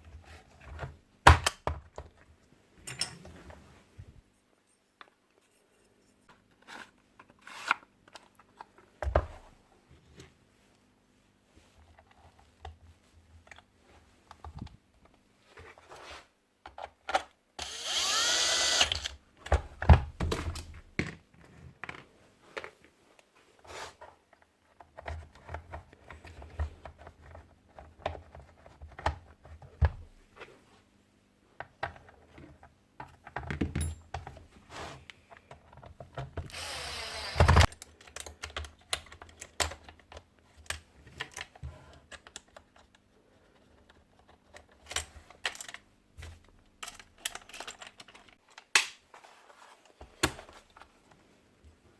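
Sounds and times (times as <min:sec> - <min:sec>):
power tool bursts: 0:17.6 - 0:19.1, 0:36.5 - 0:37.7
small parts clicking and tapping: 0:35.3 - 0:43.0, 0:43.6 - 0:48.9.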